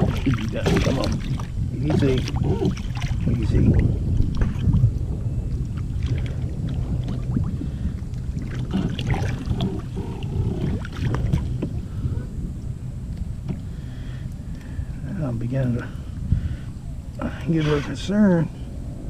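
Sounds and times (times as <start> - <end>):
water splashing around kayak: 0.0 - 19.0
wind rumble on microphone: 0.0 - 19.0.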